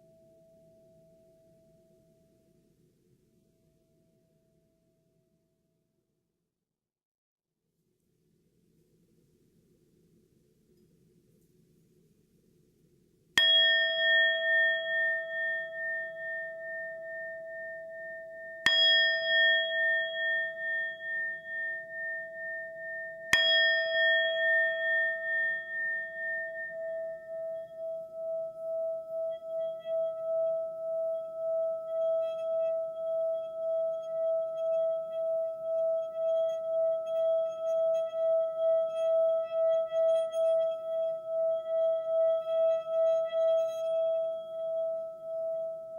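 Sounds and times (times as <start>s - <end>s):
singing bowl ringing: 13.4s - 45.9s
wavering pulsing tone: 13.8s - 45.9s.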